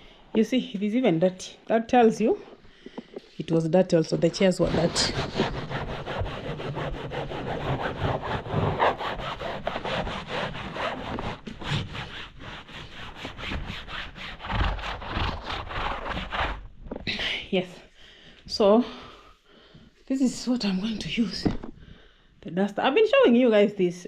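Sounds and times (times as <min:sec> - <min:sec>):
scrubbing by hand: 0:04.2 - 0:16.6.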